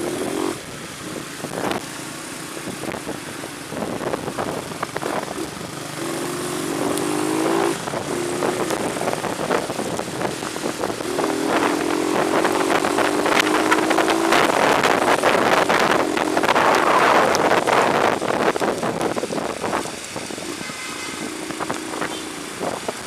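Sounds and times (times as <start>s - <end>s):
wind and road noise: 0.0s - 23.0s
rain ticks crackling: 6.4s - 20.6s, 21.3s - 23.0s.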